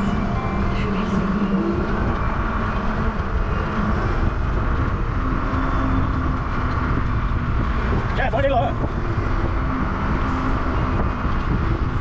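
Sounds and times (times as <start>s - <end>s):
bicycle road noise: 0.0s - 12.0s
wind rushing over microphone: 0.0s - 12.0s.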